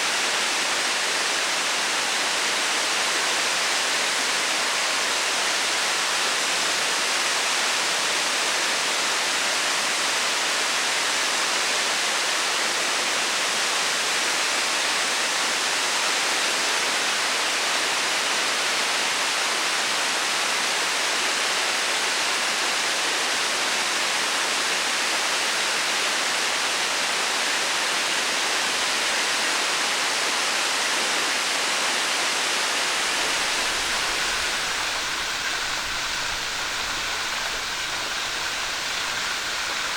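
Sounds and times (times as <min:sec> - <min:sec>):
waterfall rushing: 0:32.6 - 0:39.9.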